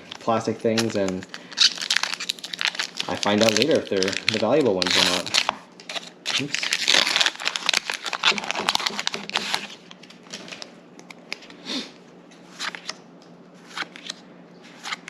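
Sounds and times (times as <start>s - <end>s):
foil wrapper crinkling: 0.0s - 10.7s.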